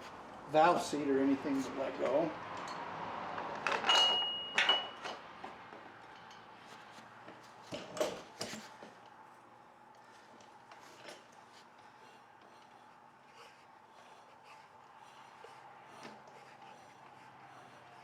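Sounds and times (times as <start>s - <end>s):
metal tools clinking: 3.6s - 5.2s.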